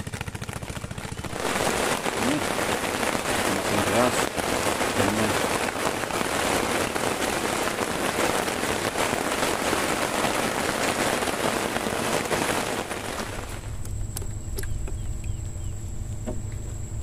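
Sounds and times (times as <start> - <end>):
heavy rain: 0.9 - 13.8.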